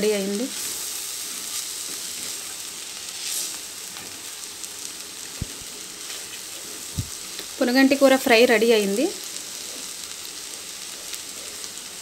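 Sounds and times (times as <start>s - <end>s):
greens sizzling in oil: 0.0s - 12.0s.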